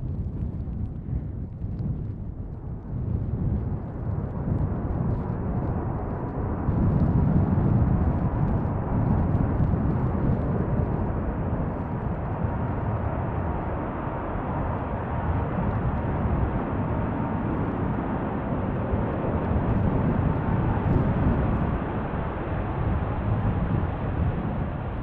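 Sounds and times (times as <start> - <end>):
jet engines rumbling: 4.9 - 25.0.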